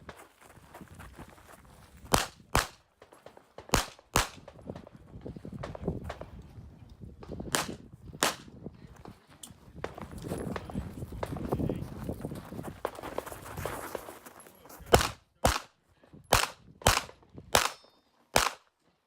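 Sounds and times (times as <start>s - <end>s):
footsteps: 0.0s - 6.6s, 7.2s - 15.2s
pistol shots: 2.1s - 2.8s, 3.7s - 4.5s, 7.5s - 8.5s, 14.9s - 15.7s, 16.3s - 18.6s.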